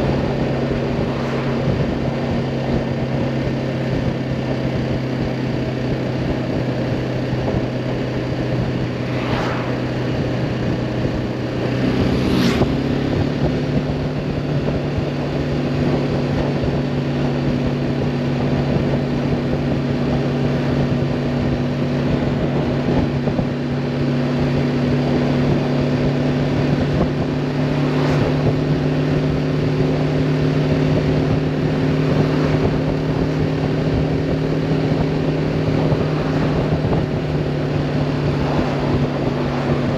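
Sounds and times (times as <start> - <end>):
motorcycle engine running: 0.0 - 39.9
wind noise: 0.0 - 39.9
brief rushes of noise: 9.0 - 9.8.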